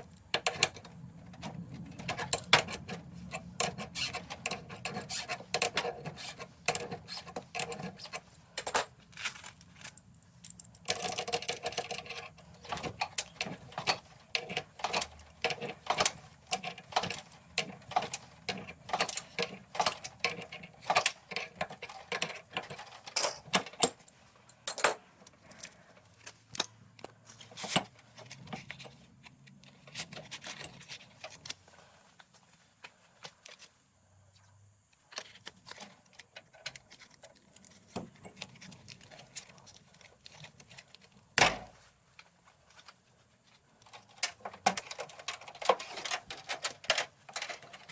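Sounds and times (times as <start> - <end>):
hand tools clicking and clinking: 0.0 - 26.8, 43.8 - 47.9.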